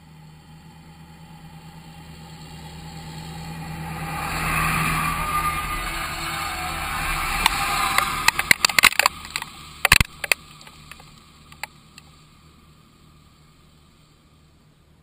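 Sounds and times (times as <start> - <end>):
tractor engine running: 0.0 - 15.0
sharp clicks and taps: 7.4 - 12.1.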